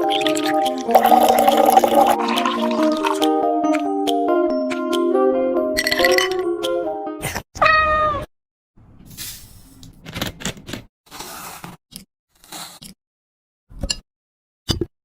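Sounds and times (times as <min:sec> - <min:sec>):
background music: 0:00.0 - 0:07.2.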